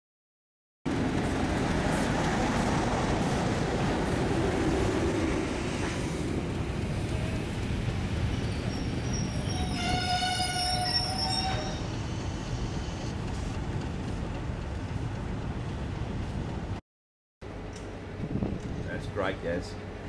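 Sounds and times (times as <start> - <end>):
train wheels rumbling on track: 0.9 - 16.8.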